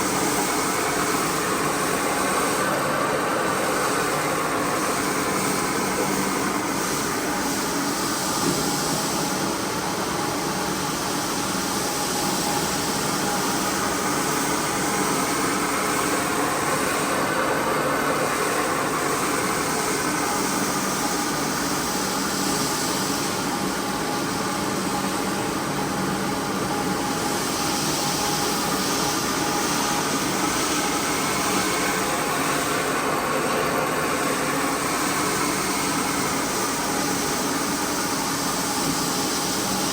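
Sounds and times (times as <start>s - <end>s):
carpet cleaner motor humming: 0.0s - 7.4s, 14.7s - 20.6s, 30.2s - 37.1s.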